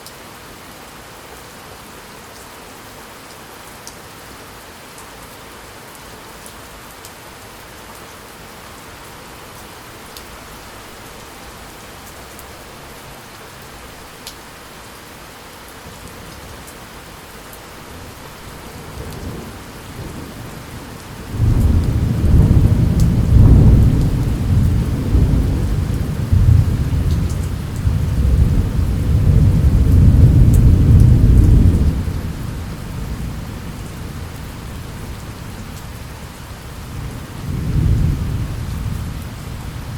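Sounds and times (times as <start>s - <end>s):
steady rain falling: 0.0s - 39.9s
thunder rumbling: 17.9s - 34.8s.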